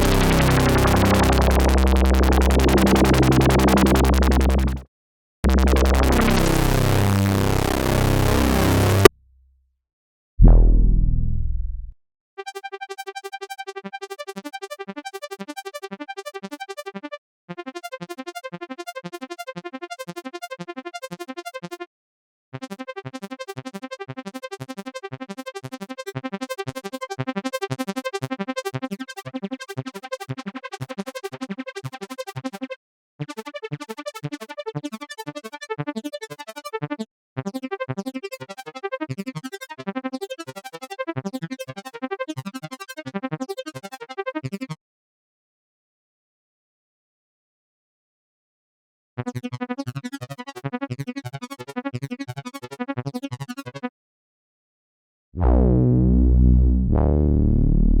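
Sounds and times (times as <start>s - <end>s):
synthesizer pulsed short notes: 0.0s - 4.8s
loud low boom: 10.4s - 12.0s.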